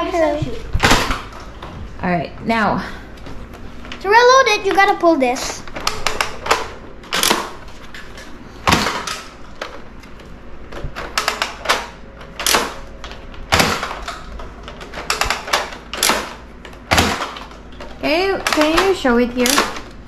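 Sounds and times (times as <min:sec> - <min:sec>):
toy blaster plastic clacks: 0:18.4 - 0:19.8.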